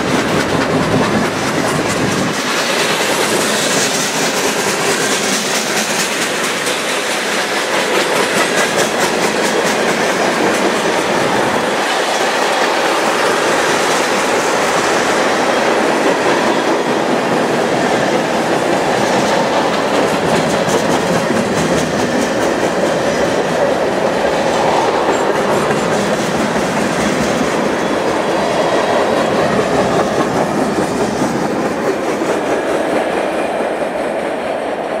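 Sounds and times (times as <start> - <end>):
wheels clicking over rail joints: 0.0 - 33.9
freight train rumbling past: 0.0 - 35.0.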